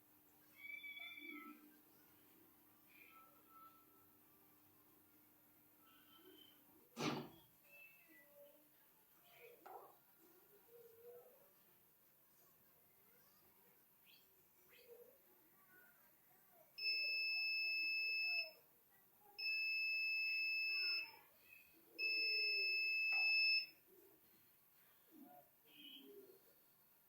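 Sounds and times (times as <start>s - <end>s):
washing machine buzzer beeps: 16.8s - 18.6s, 19.4s - 21.2s, 22.0s - 23.7s.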